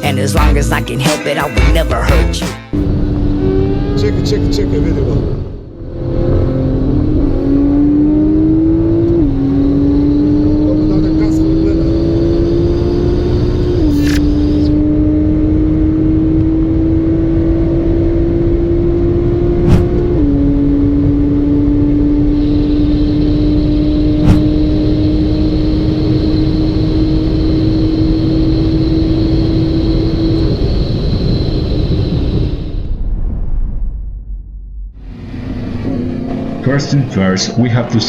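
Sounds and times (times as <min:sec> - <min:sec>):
wind noise: 0:19.2 - 0:35.3.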